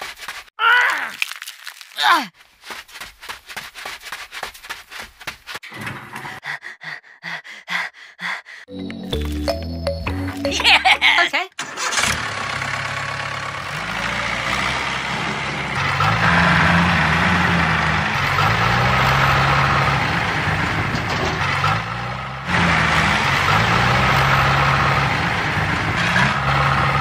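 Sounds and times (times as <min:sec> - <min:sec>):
tractor engine running: 0:05.6 - 0:06.5, 0:08.7 - 0:27.0.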